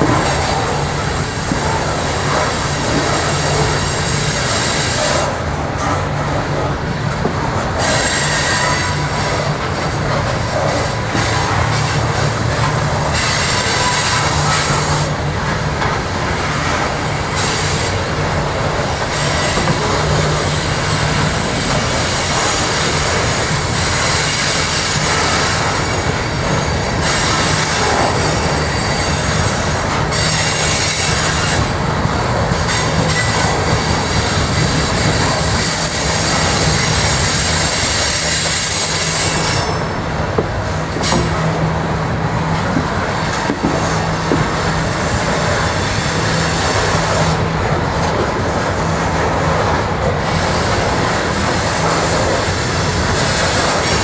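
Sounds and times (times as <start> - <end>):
steel wheels rumbling on rails: 0.0 - 54.0
high-pitched wheel squeal: 36.3 - 40.0.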